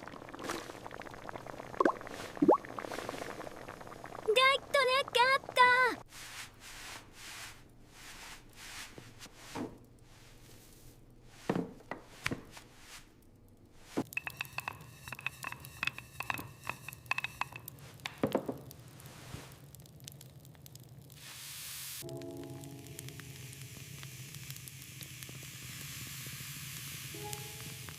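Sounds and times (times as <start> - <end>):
cookware and dishes clinking: 14.1 - 18.5.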